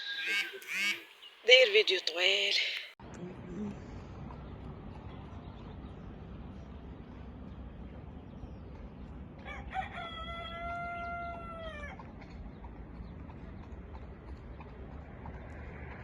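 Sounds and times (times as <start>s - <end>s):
low background hum: 1.5s - 15.9s
rooster crowing: 9.4s - 12.0s.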